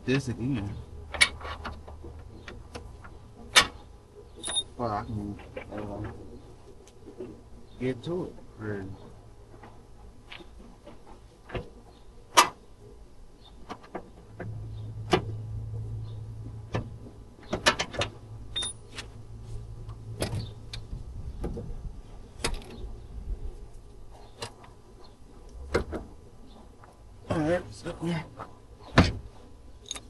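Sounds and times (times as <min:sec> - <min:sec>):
steady low hum: 0:00.0 - 0:30.0
tools and metal parts clanking: 0:04.4 - 0:04.7, 0:17.5 - 0:19.0, 0:29.8 - 0:30.0.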